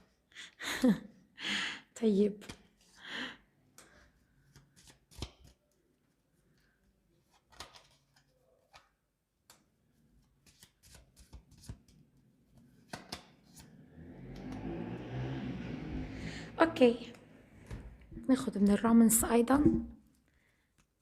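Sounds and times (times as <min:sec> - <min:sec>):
cards snapping and tapping: 0:04.5 - 0:05.6, 0:07.4 - 0:09.7, 0:10.3 - 0:12.0, 0:12.8 - 0:13.8.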